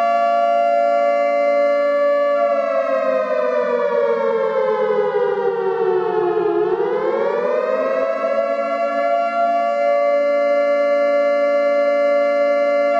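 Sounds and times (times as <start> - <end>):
siren-like horn tone: 0.0 - 12.9.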